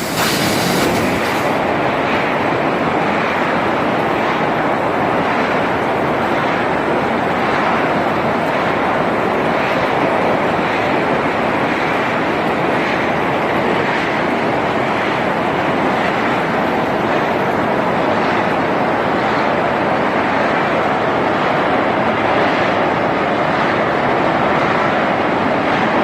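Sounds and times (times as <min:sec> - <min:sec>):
arc welding crackling: 0:00.0 - 0:01.6.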